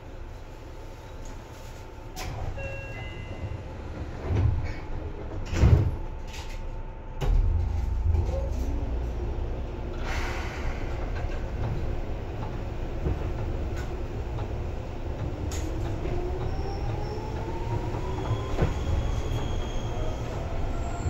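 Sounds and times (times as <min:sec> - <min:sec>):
train running noise from inside: 0:00.0 - 0:21.0
heavy low rumble: 0:06.9 - 0:16.5.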